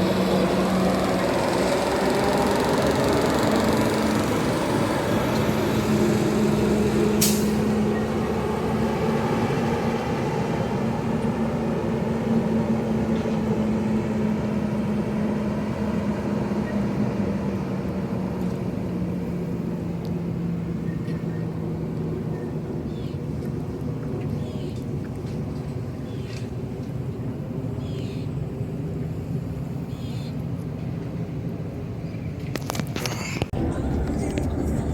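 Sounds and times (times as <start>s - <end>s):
garbage truck engine running: 0.0s - 18.0s, 33.5s - 34.9s
air brakes hissing: 7.2s - 7.8s.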